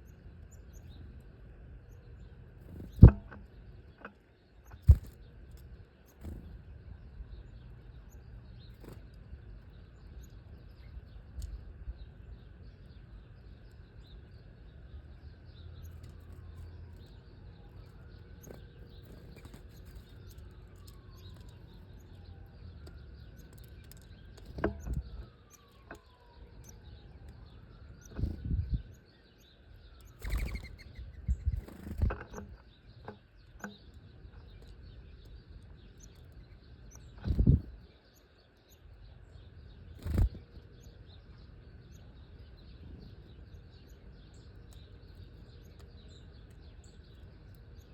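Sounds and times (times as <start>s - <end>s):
small birds chirping: 0.0s - 47.9s
wings fluttering: 4.0s - 6.7s, 15.8s - 22.2s, 30.0s - 33.7s, 37.1s - 37.9s, 39.8s - 40.7s.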